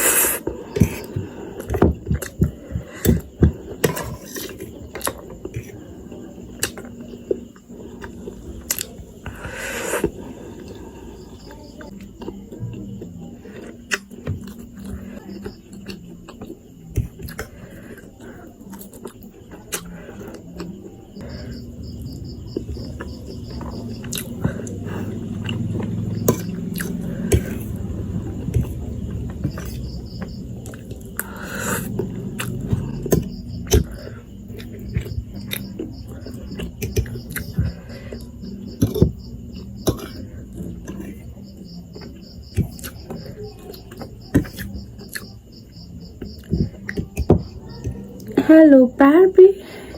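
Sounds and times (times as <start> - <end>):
chewing: 11.8 - 21.6, 22.6 - 45.4.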